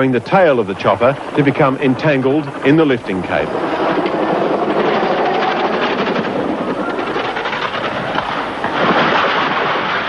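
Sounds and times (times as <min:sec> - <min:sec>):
helicopter rotor and engine: 0:00.0 - 0:09.7.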